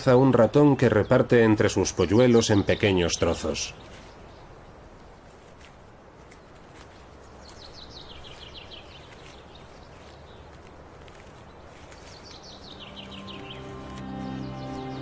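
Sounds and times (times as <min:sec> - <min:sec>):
outdoor background hiss: 0:00.0 - 0:15.0
small bird singing: 0:07.2 - 0:15.0
soft music: 0:12.7 - 0:15.0.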